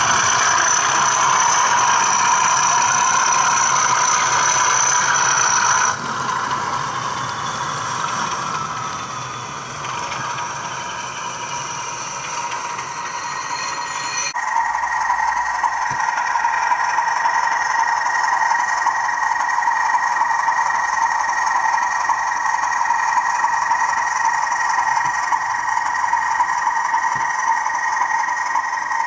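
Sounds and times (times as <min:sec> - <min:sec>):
high-pitched squeal: 0:00.0 - 0:29.0
model locomotive engine sound: 0:00.0 - 0:29.0.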